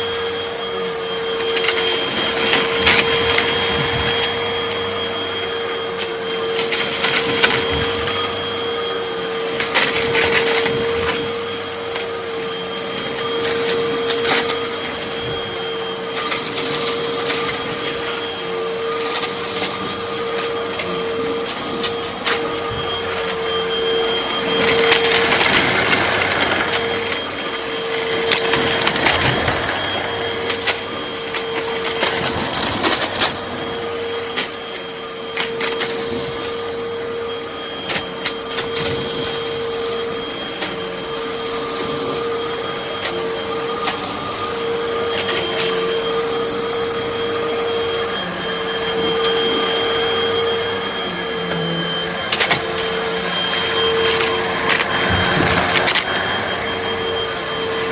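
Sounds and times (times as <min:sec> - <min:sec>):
vacuum cleaner motor whine: 0:00.0 - 0:57.9
debris rattling through hose: 0:01.0 - 0:36.5, 0:52.3 - 0:57.9.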